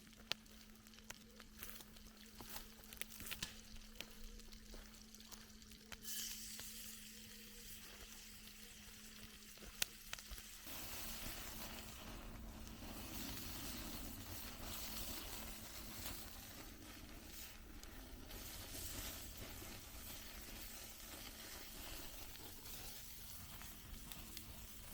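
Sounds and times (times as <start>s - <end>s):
food sizzling in a pan: 1.5s - 24.9s.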